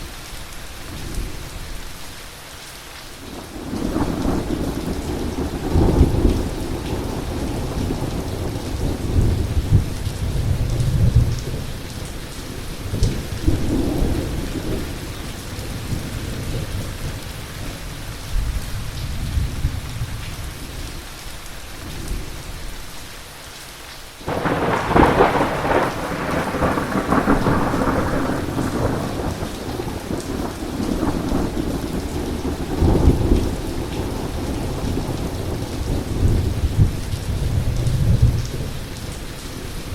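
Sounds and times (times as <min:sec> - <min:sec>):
heavy rain falling: 0:00.0 - 0:39.9
low rolling thunder: 0:03.4 - 0:17.3, 0:24.3 - 0:39.9
loud thunderclap: 0:24.3 - 0:38.8.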